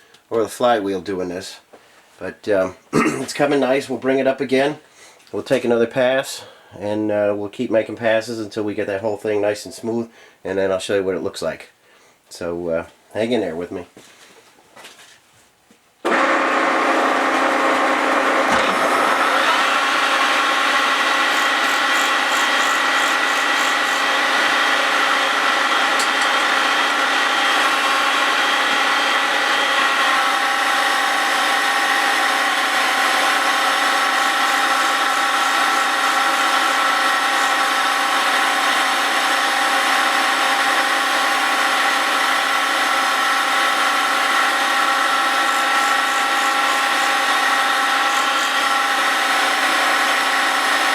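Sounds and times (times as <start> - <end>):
grinding wheel whining: 16.1 - 50.9.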